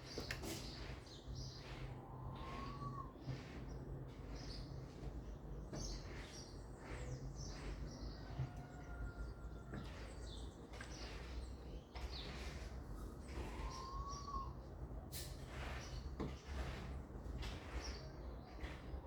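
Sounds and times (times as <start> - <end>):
small birds chirping: 0.0 - 14.6.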